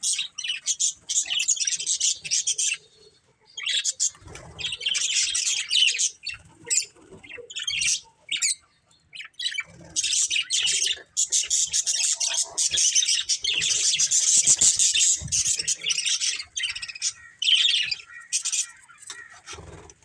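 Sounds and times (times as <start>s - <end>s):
budgerigars chirping and chattering: 0.0s - 20.0s.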